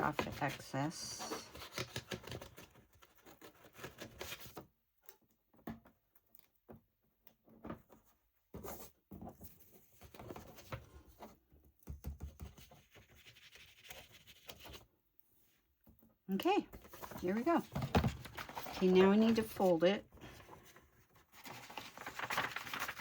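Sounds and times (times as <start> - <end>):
paper being cut and handled: 21.4 - 23.0.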